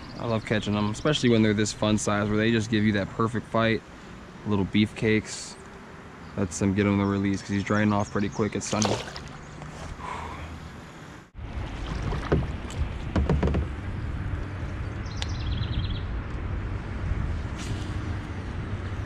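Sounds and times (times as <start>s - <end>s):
wind: 0.0s - 19.0s
water rumble: 6.4s - 10.4s, 11.3s - 19.0s
hollow knocks against hull: 11.8s - 13.8s.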